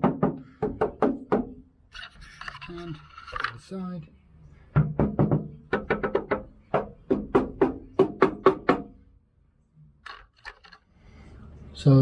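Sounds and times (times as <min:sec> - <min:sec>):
knocking on steel panel: 0:00.0 - 0:01.5.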